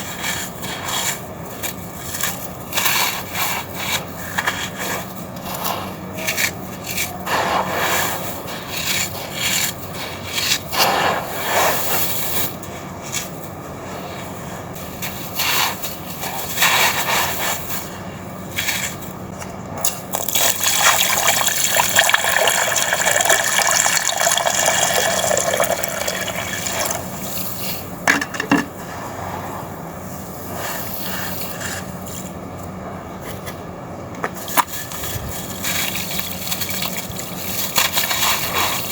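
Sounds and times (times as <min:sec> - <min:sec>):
sand-cement chunks crumbling: 0:34.3 - 0:38.9.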